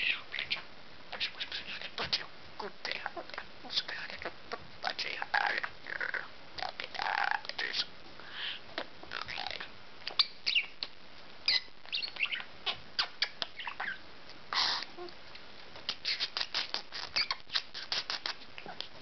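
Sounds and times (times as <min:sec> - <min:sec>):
budgerigar chattering: 0:05.3 - 0:10.9, 0:11.5 - 0:15.0, 0:15.9 - 0:18.4
budgerigar squawk: 0:11.5 - 0:14.9.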